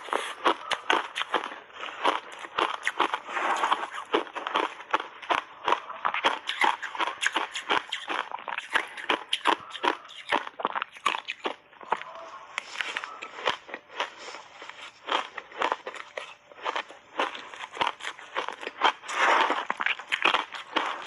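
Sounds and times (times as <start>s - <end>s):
shaved ice being chewed: 0.0s - 21.0s.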